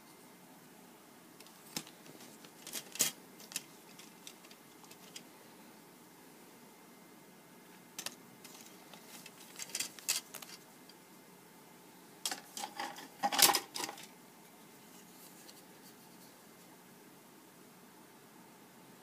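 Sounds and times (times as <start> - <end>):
plastic parts clicking and scraping: 1.4 - 5.3, 8.0 - 10.6, 12.2 - 14.1.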